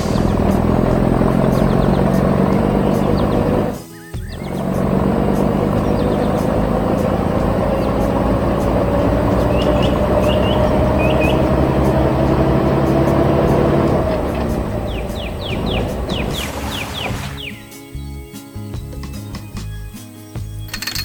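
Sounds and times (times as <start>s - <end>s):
excavator engine whining: 0.0s - 17.7s
bird chirps: 1.3s - 6.8s, 9.1s - 12.2s, 14.3s - 19.8s.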